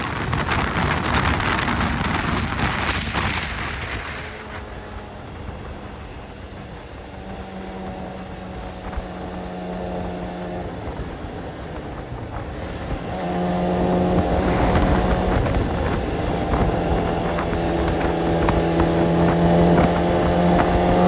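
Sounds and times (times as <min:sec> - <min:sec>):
rushing noise: 0:00.0 - 0:06.1
motorcycle engine running: 0:00.0 - 0:21.0.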